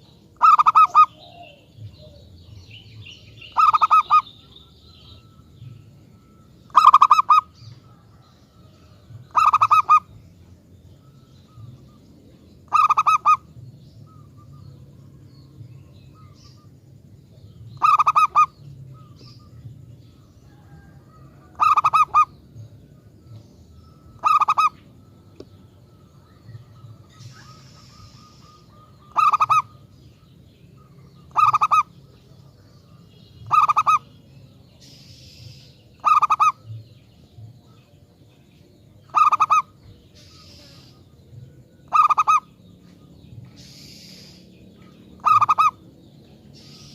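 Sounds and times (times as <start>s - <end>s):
dove cooing: 0.0s - 2.6s, 3.2s - 10.2s, 12.6s - 15.2s, 17.7s - 32.7s, 33.4s - 34.1s, 36.0s - 36.8s, 39.0s - 42.8s, 45.1s - 45.9s
faint low hum: 0.0s - 46.9s.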